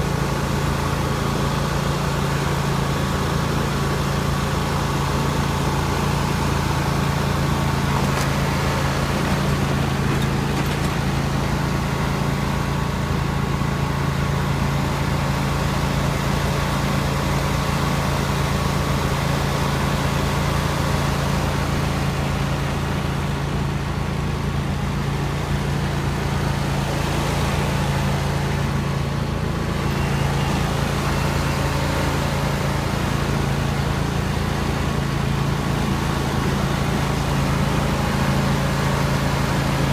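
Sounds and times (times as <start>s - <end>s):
riding lawn mower engine: 0.0s - 39.9s.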